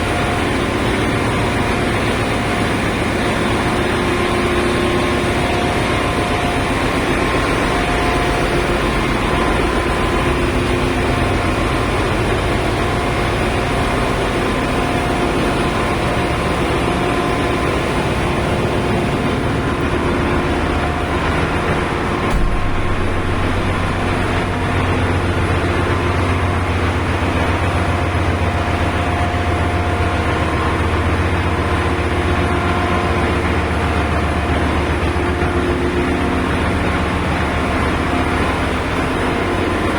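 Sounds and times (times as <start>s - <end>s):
engine room machinery drone: 0.0s - 39.9s
brief knock: 22.2s - 24.4s.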